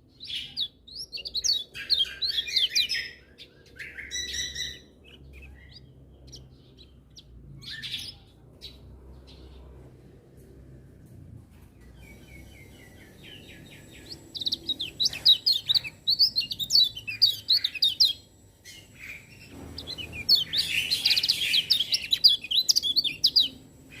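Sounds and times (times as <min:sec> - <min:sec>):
bird singing high twittering phrases: 0:00.0 - 0:09.6, 0:11.8 - 0:24.0.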